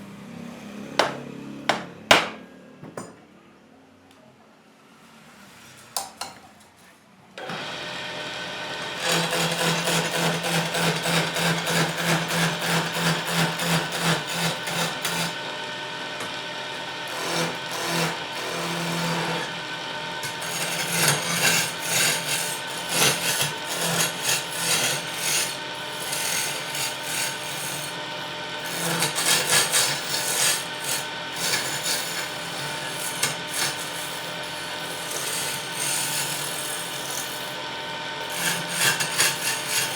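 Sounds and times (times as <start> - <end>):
wood lathe running: 7.4 - 39.9
tool rubbing spinning wood: 7.6 - 39.9.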